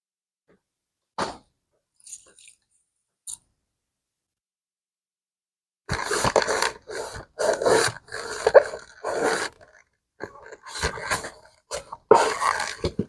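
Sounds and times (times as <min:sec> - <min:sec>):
leather bag scraping and rubbing: 0:05.9 - 0:09.7, 0:12.0 - 0:12.8.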